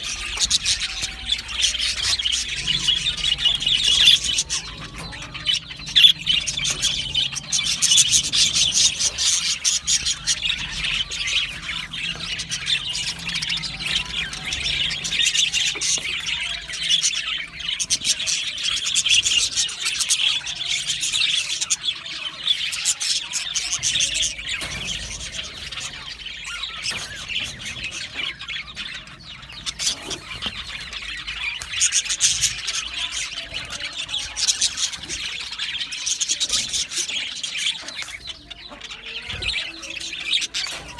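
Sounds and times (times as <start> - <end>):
budgerigar squawks: 0.0 - 19.8
budgerigars chirping: 0.0 - 40.9.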